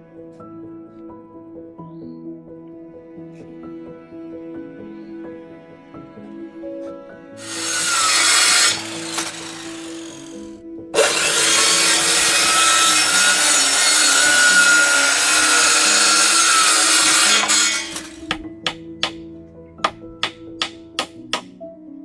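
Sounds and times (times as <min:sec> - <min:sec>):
soft background music: 0:00.0 - 0:11.0, 0:11.8 - 0:22.0
power tool running: 0:07.4 - 0:19.2, 0:19.9 - 0:21.5.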